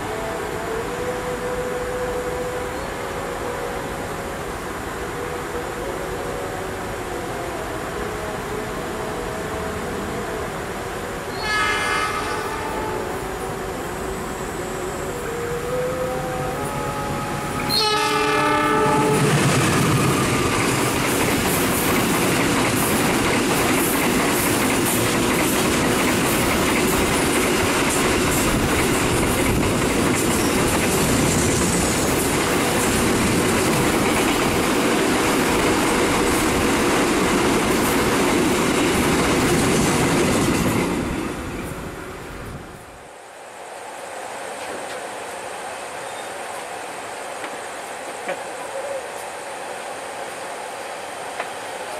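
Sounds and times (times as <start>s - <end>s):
train horn: 0.0s - 22.0s
train wheels rushing on rail: 0.0s - 51.9s
clickety-clack of rail joints: 19.1s - 41.8s, 44.6s - 45.1s, 47.4s - 48.5s, 51.3s - 51.6s.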